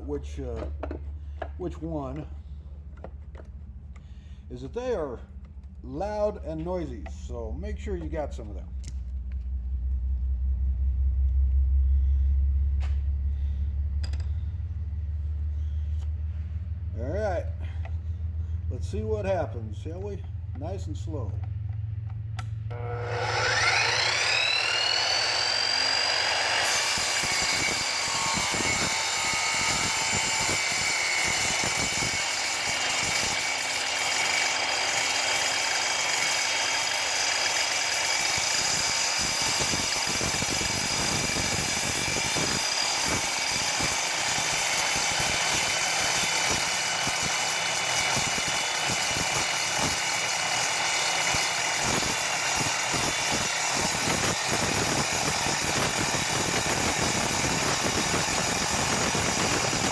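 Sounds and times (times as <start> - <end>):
miter saw cutting steel: 22.7 - 59.9.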